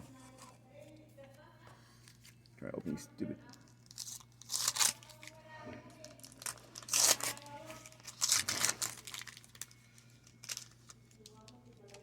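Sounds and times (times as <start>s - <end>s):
wax paper wrapper crinkling and tearing: 3.5s - 5.4s, 6.0s - 12.0s.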